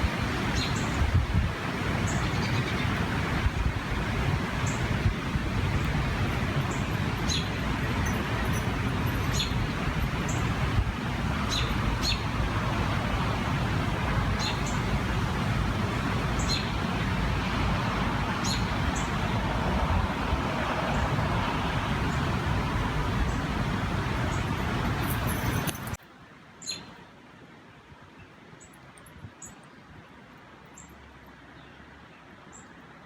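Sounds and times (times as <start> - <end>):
wind in trees: 0.0 - 33.0
bird chirping: 6.7 - 10.4.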